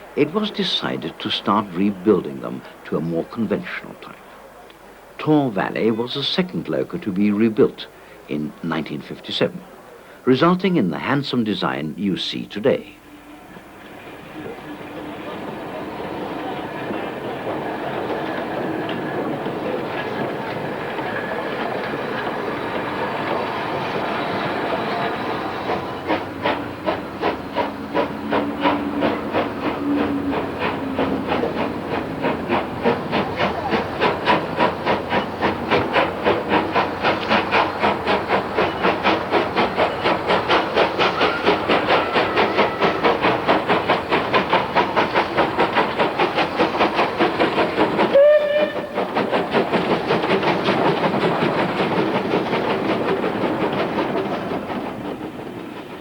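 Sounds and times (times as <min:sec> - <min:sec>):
steam locomotive exhaust beats: 0:11.4 - 0:56.0
steam hissing: 0:13.0 - 0:56.0
steam whistle blast: 0:48.1 - 0:49.0.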